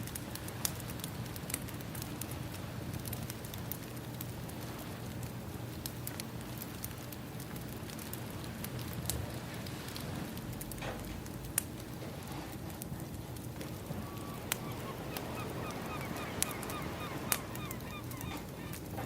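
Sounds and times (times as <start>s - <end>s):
wood fire crackling: 0.0s - 19.0s
ocean waves: 13.6s - 19.0s.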